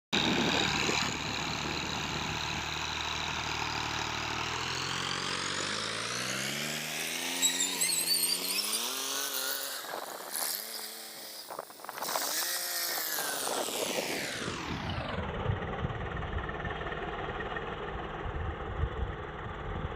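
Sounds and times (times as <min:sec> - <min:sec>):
tractor engine: 0:00.1 - 0:19.9.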